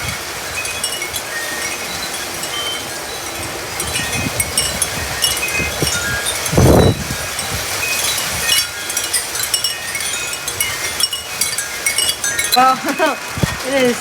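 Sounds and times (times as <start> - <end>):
gusty wind buffeting microphone: 0.0 - 14.0
wind chimes ringing: 0.0 - 14.0.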